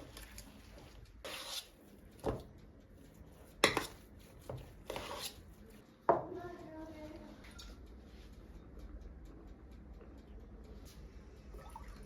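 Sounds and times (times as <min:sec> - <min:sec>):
dishes and cutlery clinking: 0:03.5 - 0:05.4.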